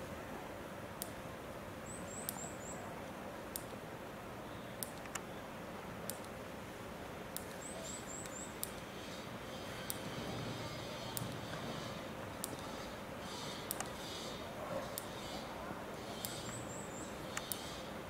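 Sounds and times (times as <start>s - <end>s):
outdoor background noise: 0.0s - 18.0s
small bird chirping: 1.8s - 2.8s, 7.5s - 10.0s, 13.3s - 17.9s
sharp repeating click: 13.3s - 14.3s, 16.1s - 16.7s, 17.3s - 17.8s.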